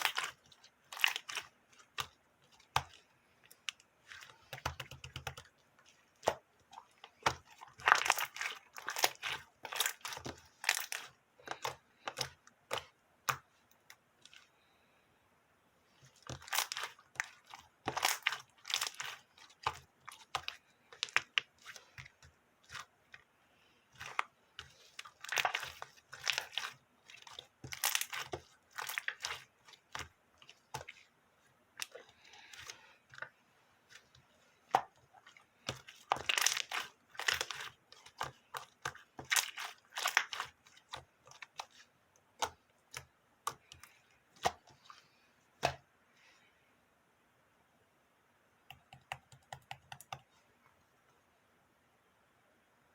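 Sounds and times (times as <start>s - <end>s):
slime crackling and popping: 0.0s - 3.0s, 6.1s - 13.4s, 16.2s - 22.0s, 25.0s - 31.0s, 35.6s - 41.8s.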